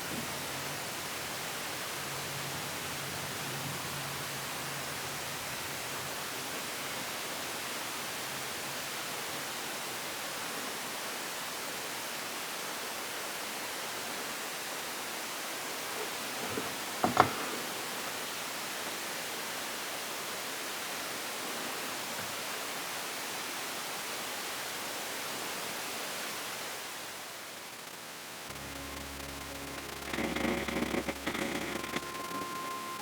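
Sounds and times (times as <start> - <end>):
steady hiss: 25.4 - 33.0
faint low hum: 28.4 - 33.0.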